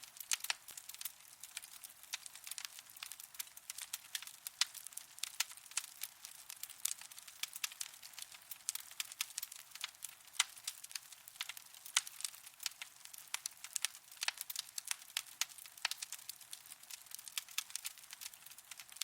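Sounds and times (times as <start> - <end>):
soft fire hiss: 0.0 - 19.0
wood fire crackling and popping: 0.0 - 19.0.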